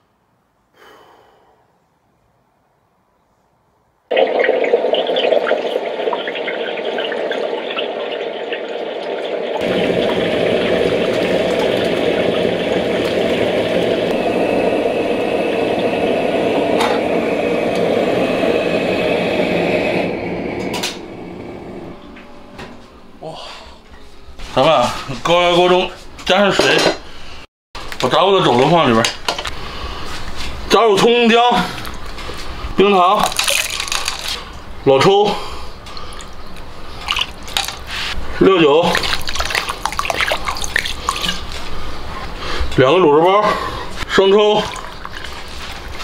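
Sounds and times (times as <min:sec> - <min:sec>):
hot oil sizzling and crackling: 0:04.2 - 0:20.9, 0:36.0 - 0:38.3, 0:38.9 - 0:42.1, 0:43.8 - 0:46.0.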